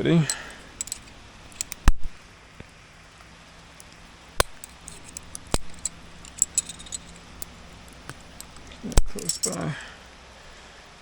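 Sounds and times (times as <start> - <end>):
metal climbing hardware clinking: 0.0 - 2.2, 3.8 - 9.9.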